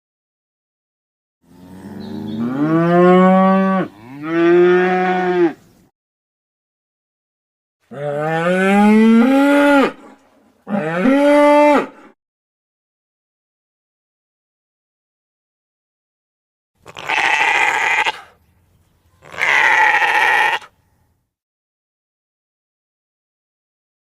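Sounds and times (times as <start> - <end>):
cow mooing: 1.5 - 5.6, 7.9 - 10.0, 10.7 - 12.1.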